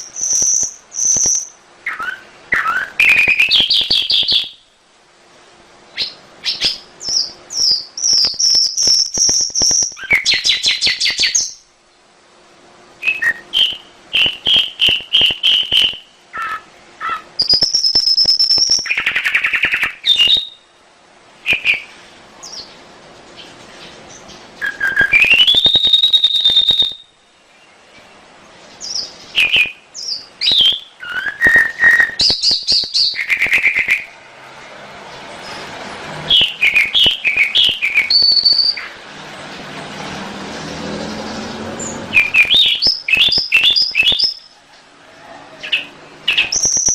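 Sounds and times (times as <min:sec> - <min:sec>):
canary singing trills and whistles: 0:00.0 - 0:04.7, 0:05.9 - 0:11.7, 0:13.0 - 0:20.8, 0:21.4 - 0:22.8, 0:23.4 - 0:28.1, 0:28.7 - 0:34.2, 0:36.3 - 0:39.0, 0:41.7 - 0:44.6, 0:45.3 - 0:46.9.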